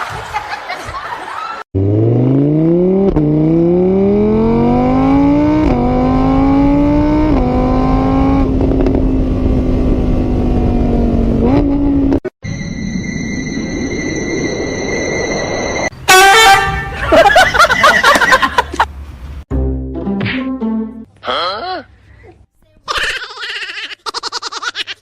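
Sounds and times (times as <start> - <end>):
vehicle engine accelerating: 1.8 - 12.2.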